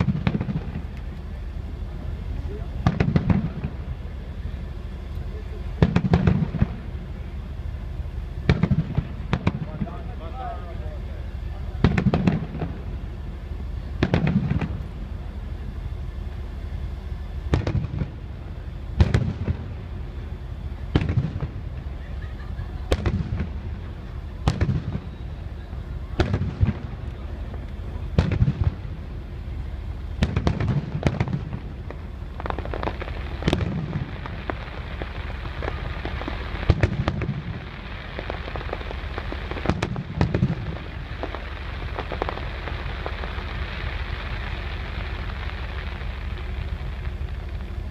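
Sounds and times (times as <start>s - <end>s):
fireworks crackle: 0.0s - 47.9s
fireworks shells bursting: 30.1s - 47.9s.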